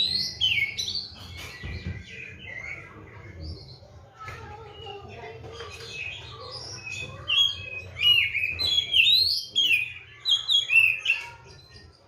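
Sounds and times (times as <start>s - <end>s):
songbird whistling song: 0.0s - 3.0s, 5.8s - 12.0s.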